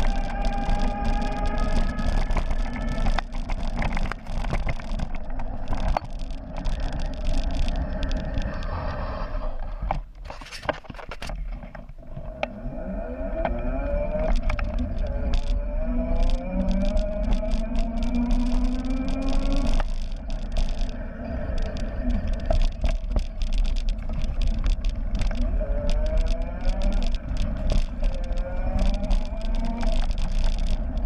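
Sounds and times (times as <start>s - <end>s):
sharp knocks and rattles: 0.0s - 8.6s
electric bike motor whining: 0.0s - 9.6s, 12.4s - 31.0s
low rumble: 0.0s - 10.1s, 12.0s - 31.0s.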